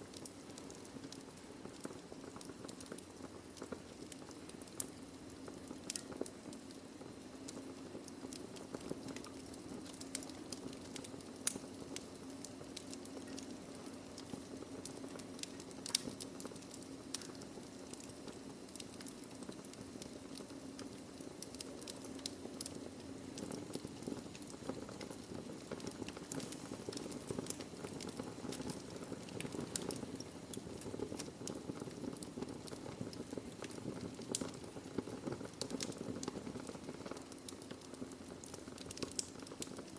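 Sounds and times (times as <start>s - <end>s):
logs crackling and popping: 0.0s - 39.9s
fire hissing: 8.8s - 39.9s.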